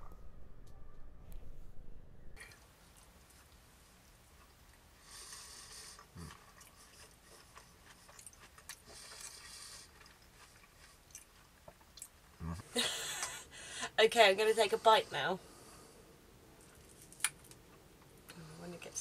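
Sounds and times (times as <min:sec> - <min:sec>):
person chewing softly: 0:02.4 - 0:12.6, 0:15.5 - 0:18.5.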